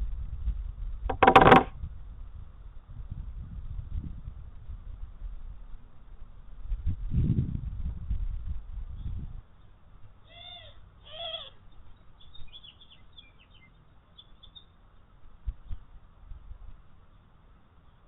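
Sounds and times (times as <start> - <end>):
low thumps: 1.1 - 1.7
bird arching calls: 10.3 - 11.6.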